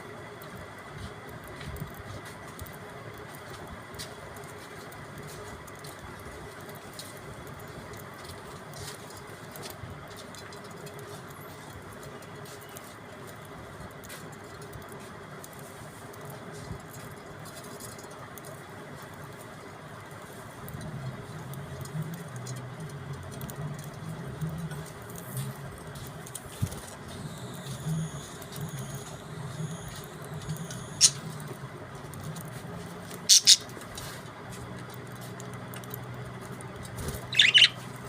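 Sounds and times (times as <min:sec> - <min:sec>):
steady background noise: 0:00.0 - 0:38.0
budgerigars chattering: 0:30.9 - 0:31.2, 0:33.3 - 0:33.7, 0:37.3 - 0:37.8.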